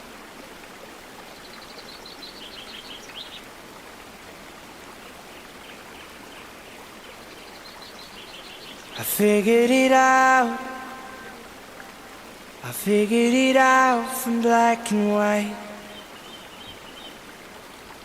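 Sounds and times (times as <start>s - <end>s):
river water flowing: 0.0s - 18.0s
small birds chirping: 1.3s - 3.5s, 5.0s - 9.6s, 15.6s - 17.3s.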